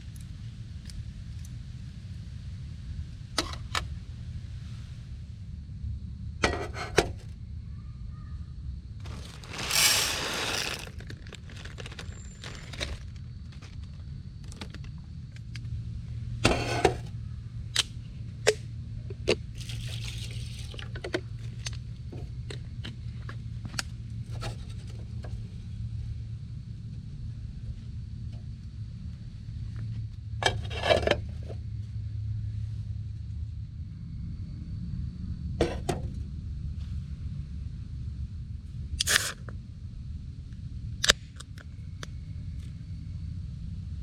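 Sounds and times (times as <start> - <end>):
loud scrape: 9.0 - 13.0.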